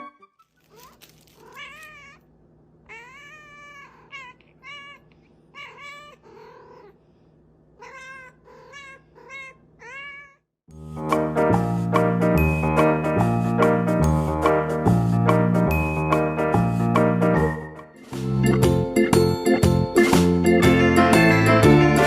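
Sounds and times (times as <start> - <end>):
cat meowing: 0.6 - 2.3, 2.9 - 7.0, 7.8 - 10.5.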